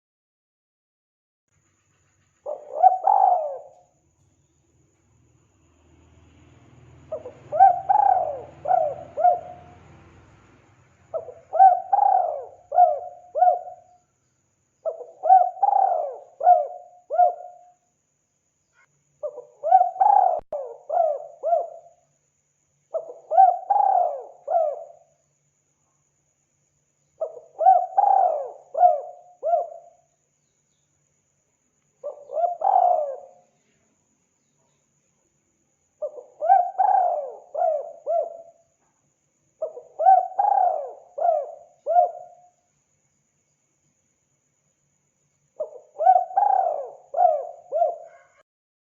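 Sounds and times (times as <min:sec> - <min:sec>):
dove cooing: 0:02.4 - 0:03.9, 0:07.1 - 0:09.9, 0:11.1 - 0:14.0, 0:14.8 - 0:17.7, 0:19.2 - 0:22.0, 0:22.9 - 0:25.1, 0:27.2 - 0:30.0, 0:32.0 - 0:33.5, 0:36.0 - 0:38.6, 0:39.6 - 0:42.5, 0:45.6 - 0:48.4.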